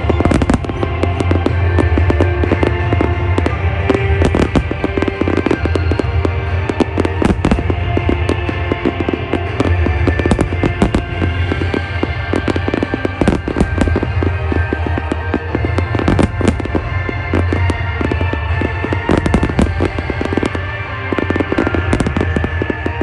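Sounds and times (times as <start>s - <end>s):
fireworks bursting and crackling: 0.0s - 23.0s
music playing: 0.0s - 23.0s.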